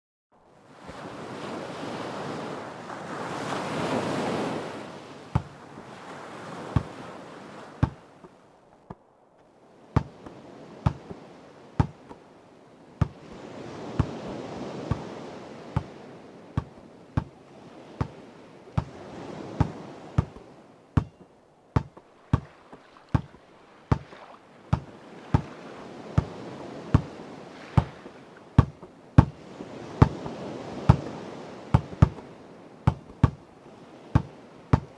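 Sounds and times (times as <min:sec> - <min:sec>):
ocean waves washing ashore: 0:00.3 - 0:34.9
basketball bouncing: 0:05.4 - 0:05.6, 0:10.0 - 0:10.2, 0:10.9 - 0:11.2, 0:11.8 - 0:12.2, 0:13.0 - 0:13.2, 0:16.6 - 0:17.3, 0:18.8 - 0:19.0, 0:19.6 - 0:20.4, 0:21.0 - 0:22.5, 0:23.1 - 0:25.5, 0:28.6 - 0:29.4, 0:31.8 - 0:32.2, 0:32.9 - 0:33.4, 0:34.2 - 0:34.9.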